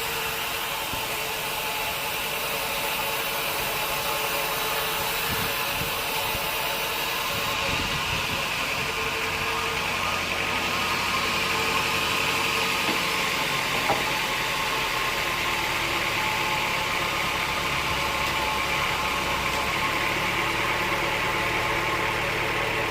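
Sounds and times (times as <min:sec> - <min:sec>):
band sawmill drone: 0:00.0 - 0:22.9.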